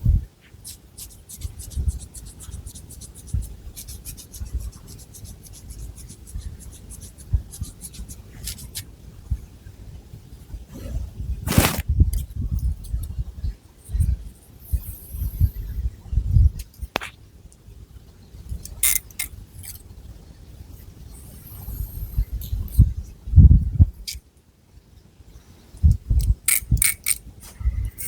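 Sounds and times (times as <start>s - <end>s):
fingernails scratching hair and scalp: 11.5s - 11.8s.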